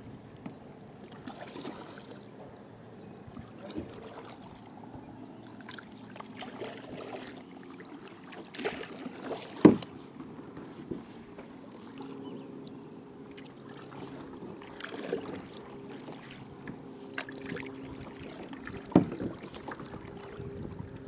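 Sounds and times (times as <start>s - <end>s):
water lapping around a kayak: 0.0s - 21.0s
gear knocking on kayak: 9.5s - 11.6s, 16.6s - 21.0s
sharp knock against hull: 9.6s - 10.0s, 18.9s - 19.6s.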